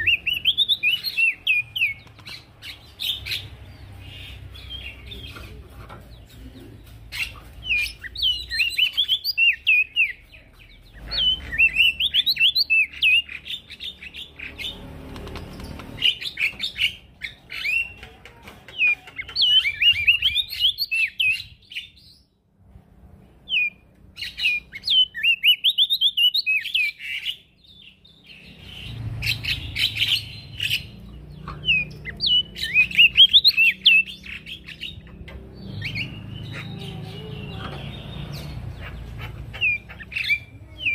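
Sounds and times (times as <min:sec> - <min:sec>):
songbird twittering chirps: 0:00.0 - 0:22.5, 0:23.3 - 0:40.9.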